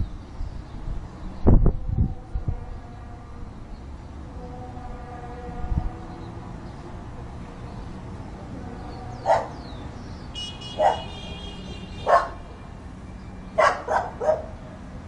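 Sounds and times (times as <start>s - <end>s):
dog barking: 9.2s - 9.6s, 10.7s - 11.3s, 12.0s - 12.4s, 13.6s - 14.6s.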